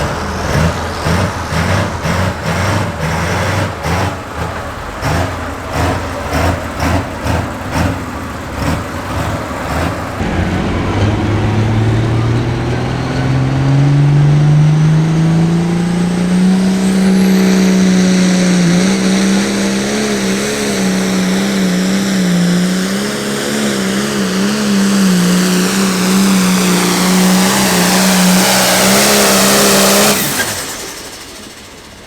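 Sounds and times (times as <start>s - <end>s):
tractor diesel engine revving: 0.0s - 32.0s.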